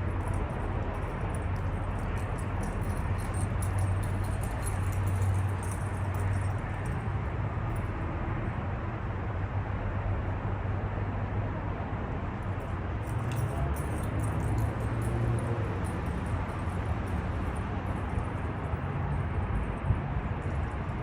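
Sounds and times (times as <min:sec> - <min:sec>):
vehicle engine running: 0:00.0 - 0:08.0
faint clicking or jingling: 0:00.3 - 0:06.6.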